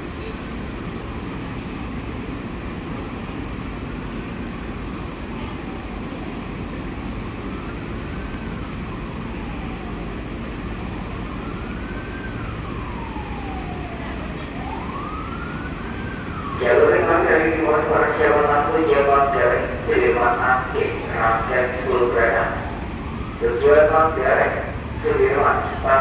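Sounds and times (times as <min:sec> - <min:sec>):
passenger train rumbling: 0:00.0 - 0:26.0
wailing siren: 0:03.8 - 0:26.0.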